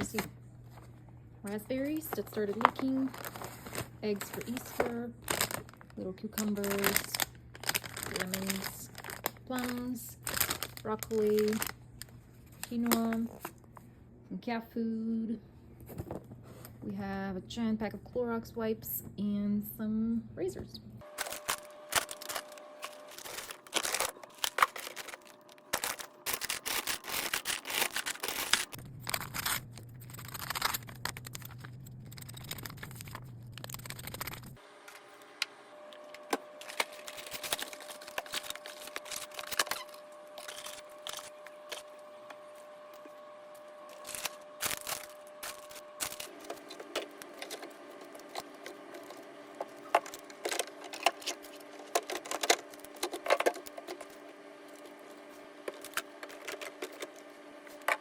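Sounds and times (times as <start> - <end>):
faint steady hum: 0.0 - 58.0
packaging rustling: 1.9 - 13.6, 21.0 - 34.6, 36.0 - 41.9, 43.8 - 54.9, 55.6 - 58.0.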